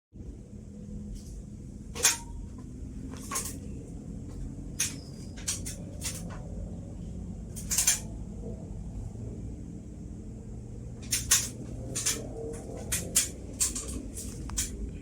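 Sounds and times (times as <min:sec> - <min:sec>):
ceiling fan humming: 0:00.2 - 0:15.0
sharp clicks and knocks: 0:01.9 - 0:06.5, 0:07.5 - 0:08.1, 0:11.0 - 0:15.0.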